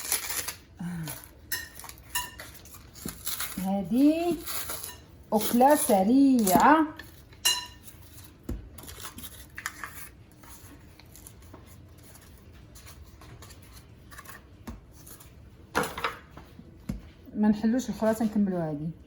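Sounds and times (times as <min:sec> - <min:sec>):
dishes clinking: 0:01.5 - 0:03.4, 0:06.6 - 0:08.0.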